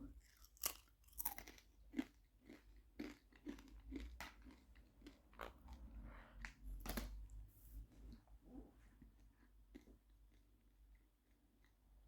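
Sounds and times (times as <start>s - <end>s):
parrot crunching crisp: 0.2s - 5.6s.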